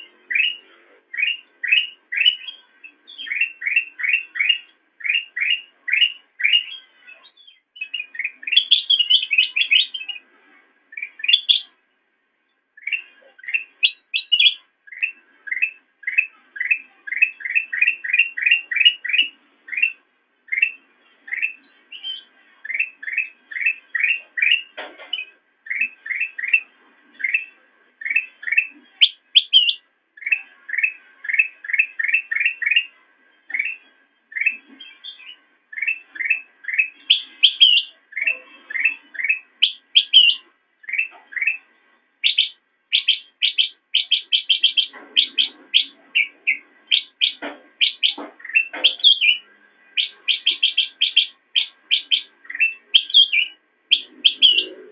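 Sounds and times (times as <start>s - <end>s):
bulbul singing rising chirps: 33.5s - 54.8s.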